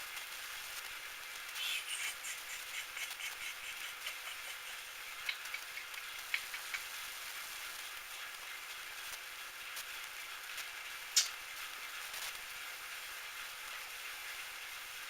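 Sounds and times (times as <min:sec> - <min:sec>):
sharp ticks: 0:01.6 - 0:07.0.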